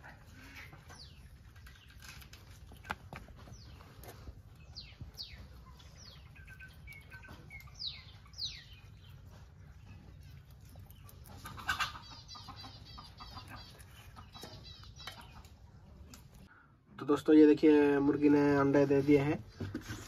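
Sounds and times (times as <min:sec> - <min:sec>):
rapid bird chirps: 0:03.4 - 0:15.6
downward-sweeping bird calls: 0:04.7 - 0:09.1.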